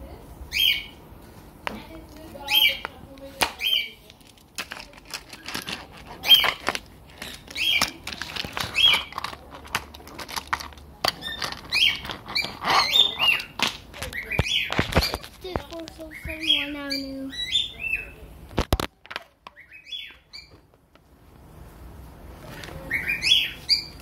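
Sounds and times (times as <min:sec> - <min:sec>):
bird chirping: 0:00.5 - 0:01.0, 0:06.2 - 0:08.0, 0:11.2 - 0:15.3, 0:16.0 - 0:18.3, 0:19.5 - 0:20.7, 0:22.8 - 0:24.0
light clicks and rattles: 0:04.0 - 0:12.8.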